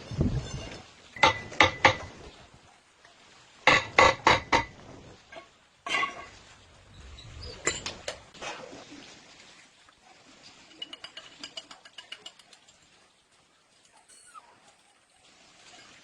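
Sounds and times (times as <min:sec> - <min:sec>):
metal objects clinking: 0:07.0 - 0:08.2, 0:10.7 - 0:12.8.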